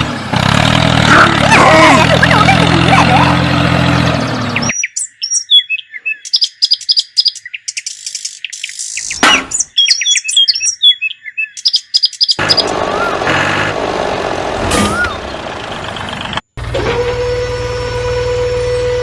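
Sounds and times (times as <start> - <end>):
birds chirping: 1.1 - 13.8.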